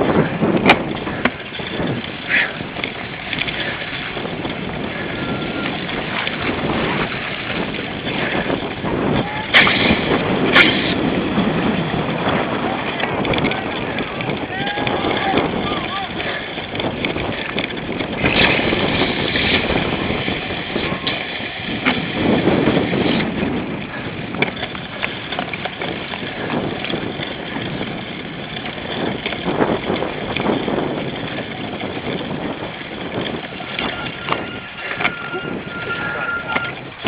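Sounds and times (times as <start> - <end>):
bike knocking and rattling: 0.0 - 37.0
bike riding noise: 0.0 - 37.0
wind on microphone: 0.0 - 37.0.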